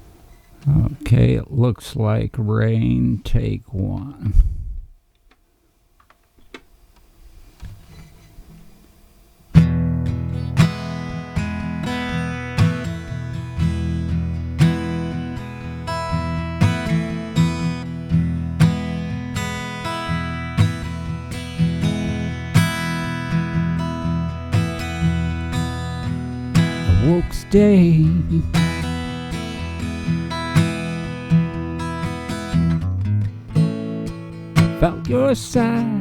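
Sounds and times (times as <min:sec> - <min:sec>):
acoustic guitar strumming chords: 0:09.6 - 0:36.0.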